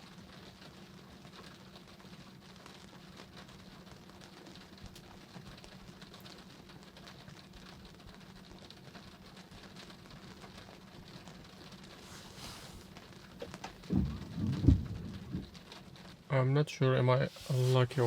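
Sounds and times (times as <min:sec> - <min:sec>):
light rain pattering: 0:00.0 - 0:18.0
low steady hum: 0:11.5 - 0:18.0.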